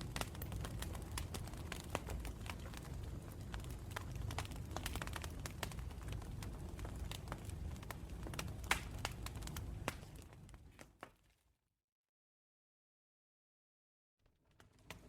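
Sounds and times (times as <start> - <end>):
low rumble of flames: 0.0 - 11.1, 14.4 - 15.0
burning wood crackling and popping: 0.0 - 11.3, 14.3 - 15.0.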